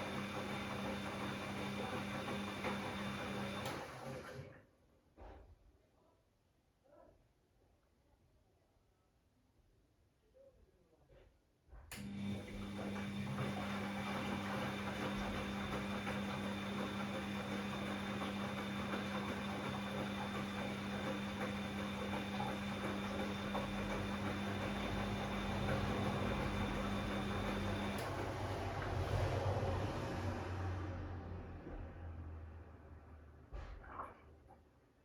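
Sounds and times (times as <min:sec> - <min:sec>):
drain pump humming: 0:00.0 - 0:04.1, 0:12.0 - 0:30.1.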